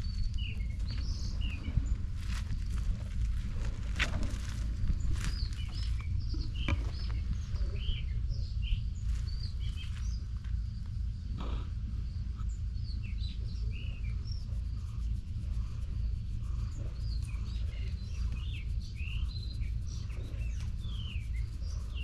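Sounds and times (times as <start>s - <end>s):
small birds chirping: 0.0s - 22.0s
steady low rumble: 0.0s - 22.0s.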